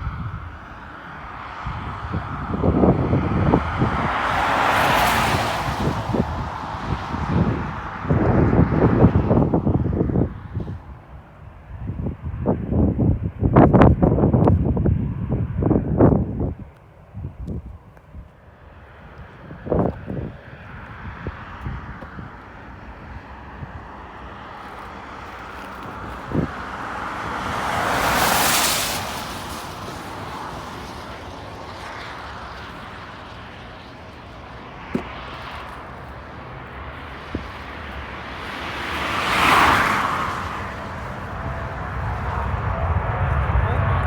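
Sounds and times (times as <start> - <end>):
vehicles whooshing past: 0.0 - 12.8, 18.5 - 44.0
steady low rumble: 40.2 - 44.0.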